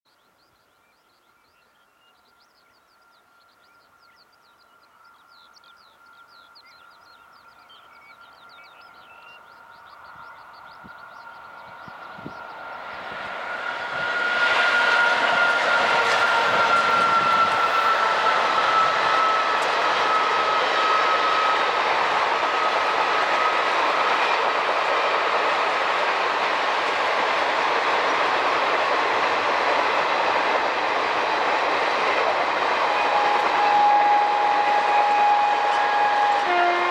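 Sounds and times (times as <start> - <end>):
birds chirping: 0.1 - 13.3
train wheels rushing on rail: 2.4 - 36.9
electric locomotive blower whine: 9.5 - 36.9.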